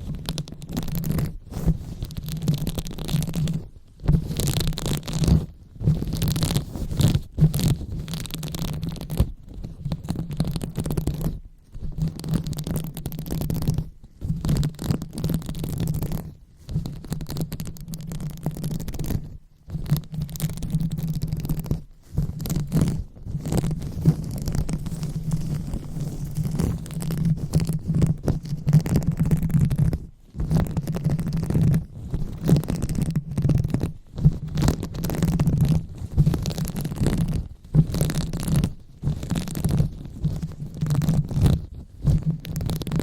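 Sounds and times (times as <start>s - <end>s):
hands scratching on microphone: 0.0s - 43.0s.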